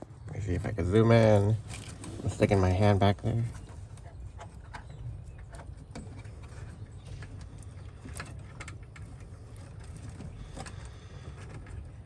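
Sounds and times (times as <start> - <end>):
light clicks and rustling: 3.5 - 12.0.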